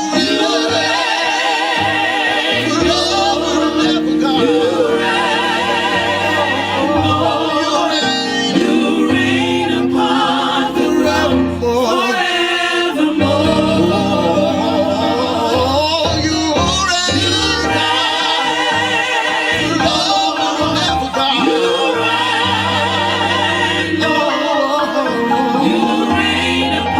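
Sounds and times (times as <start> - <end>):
instrumental backing with bass: 0.0 - 12.4, 13.2 - 26.9
gospel choir singing: 0.0 - 26.9.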